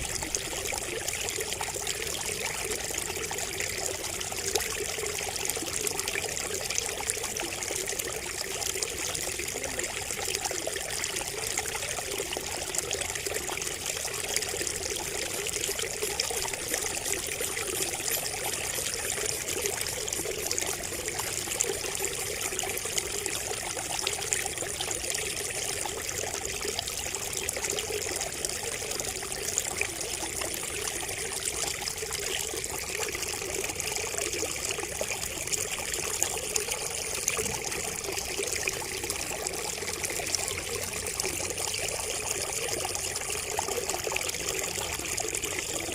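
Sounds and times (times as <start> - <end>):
water trickling from bamboo spout: 0.0 - 45.9.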